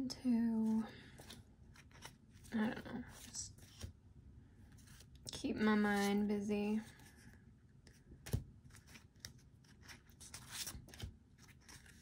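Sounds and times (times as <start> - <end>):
paper rustling: 8.3 - 12.0.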